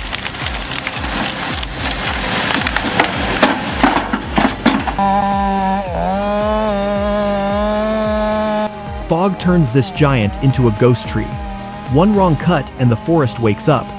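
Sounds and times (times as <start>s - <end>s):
wood cracking and splintering: 0.0s - 5.1s
music beat: 0.0s - 13.9s
steady motor tone: 0.0s - 13.9s.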